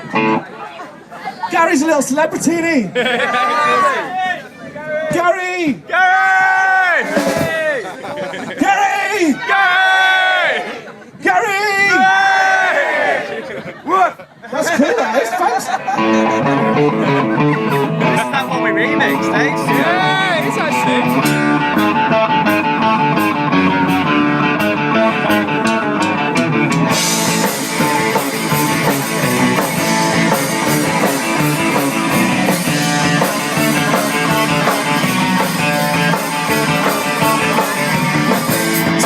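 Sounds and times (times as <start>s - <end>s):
electric guitar: 0.0s - 0.4s, 15.9s - 39.0s
drum kit and cymbals: 7.0s - 7.7s, 25.3s - 39.0s.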